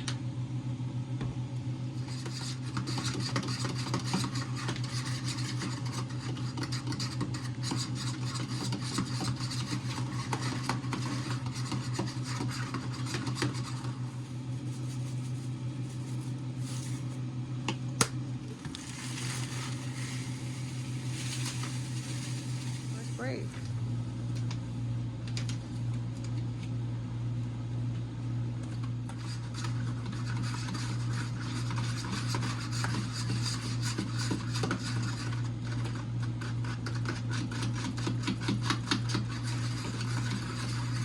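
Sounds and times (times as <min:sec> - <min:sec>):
steady low hum: 0:00.2 - 0:35.4
scraping in a bowl: 0:02.0 - 0:17.2, 0:18.5 - 0:23.7, 0:29.1 - 0:41.0.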